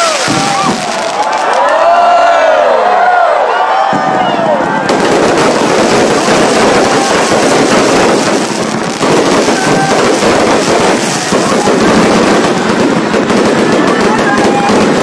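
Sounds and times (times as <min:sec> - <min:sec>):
fireworks crackling: 0:00.0 - 0:01.9, 0:04.0 - 0:15.0.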